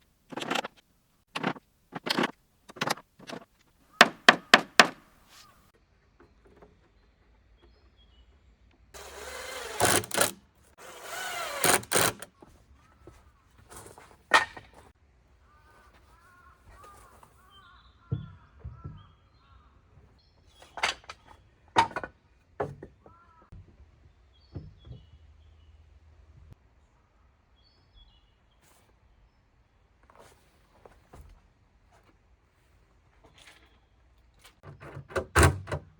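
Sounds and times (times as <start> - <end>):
sharp knocks: 1.4 - 5.1
faint birds chirping: 3.3 - 34.6
short rasping bursts: 9.0 - 12.3.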